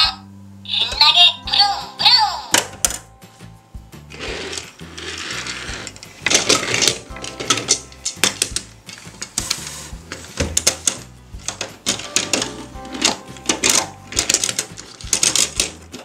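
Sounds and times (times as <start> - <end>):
light background music: 0.0 - 16.0
scraping rustle: 4.1 - 12.6
plastic toys clicking and clattering: 4.1 - 16.0.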